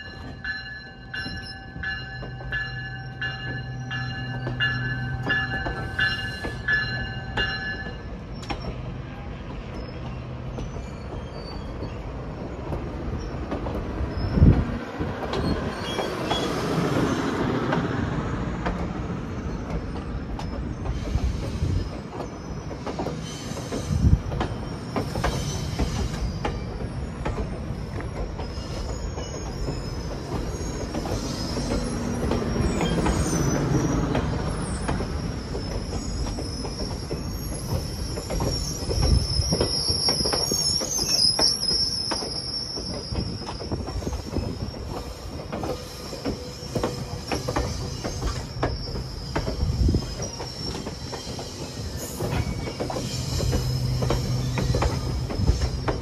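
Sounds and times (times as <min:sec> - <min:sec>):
train wheels clicking on track: 0:00.0 - 0:56.0
high-pitched wheel squeal: 0:27.7 - 0:56.0.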